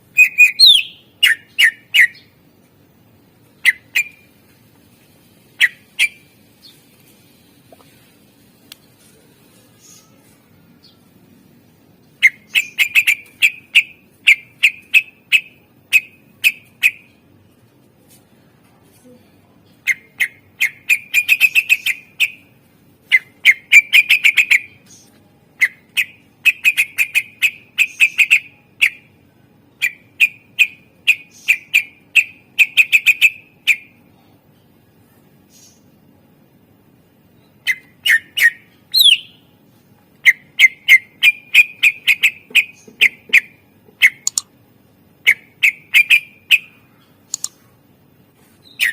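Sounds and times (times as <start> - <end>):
bird singing sharp repeated notes: 0.0 - 2.4, 3.6 - 4.3, 5.4 - 6.8, 12.0 - 17.2, 19.8 - 22.5, 23.1 - 34.0, 37.4 - 39.5, 40.2 - 44.5, 45.2 - 47.6, 48.6 - 48.9.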